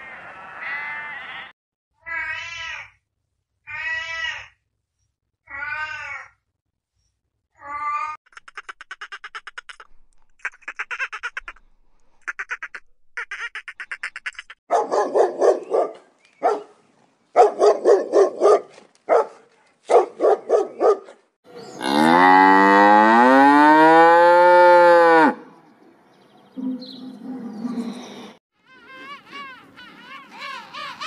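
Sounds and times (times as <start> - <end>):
dog barking: 14.7 - 16.8, 17.4 - 21.2
cow mooing: 21.8 - 25.4.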